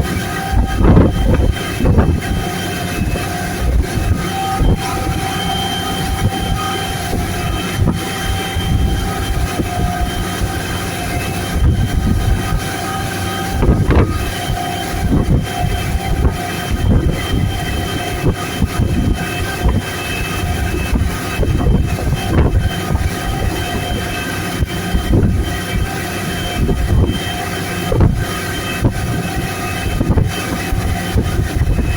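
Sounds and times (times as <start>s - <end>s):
motorboat engine whine: 0.0s - 31.9s
wind buffeting microphone: 0.0s - 31.9s.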